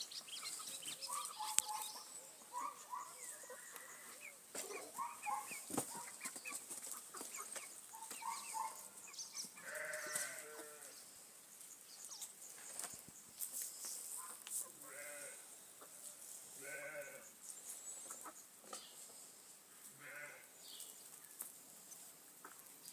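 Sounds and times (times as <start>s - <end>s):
chickens calling: 0.0s - 21.5s, 22.4s - 22.9s.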